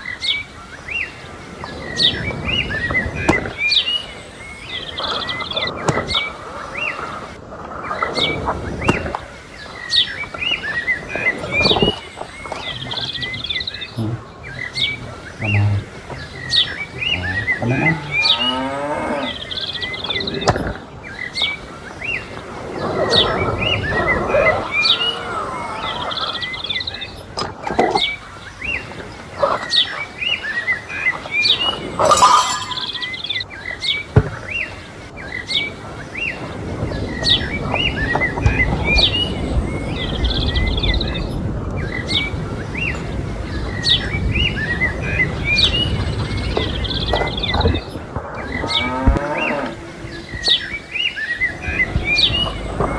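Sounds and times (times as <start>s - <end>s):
small birds chirping: 0.0s - 52.9s
cattle mooing: 17.0s - 19.4s, 48.6s - 50.0s.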